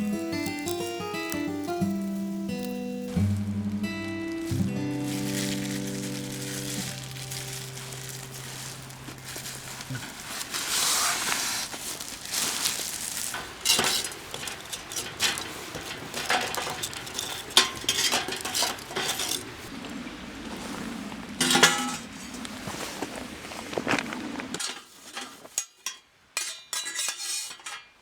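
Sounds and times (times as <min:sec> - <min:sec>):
held musical notes: 0:00.0 - 0:11.0
food sizzling in a pan: 0:00.0 - 0:11.4
metal utensils clinking: 0:00.0 - 0:19.7, 0:21.4 - 0:22.1, 0:24.6 - 0:28.0.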